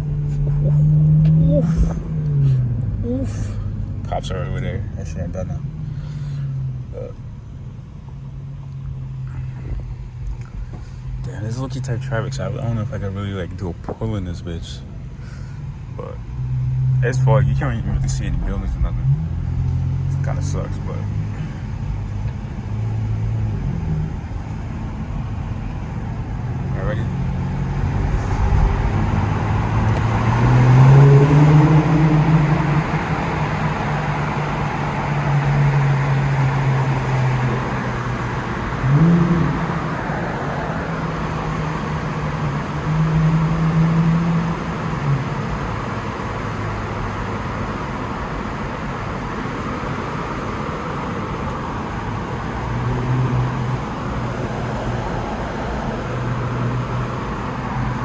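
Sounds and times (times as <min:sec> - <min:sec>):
road noise: 0:00.0 - 0:58.0
car exhaust accelerating: 0:14.6 - 0:58.0.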